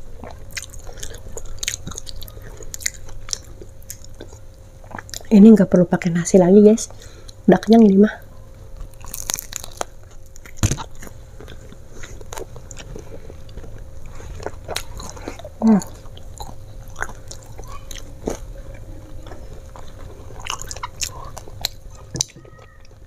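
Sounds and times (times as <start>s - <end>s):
chewing with crunches and smacks: 0.1s - 5.3s, 8.7s - 23.0s
crunchy bites: 8.8s - 18.5s.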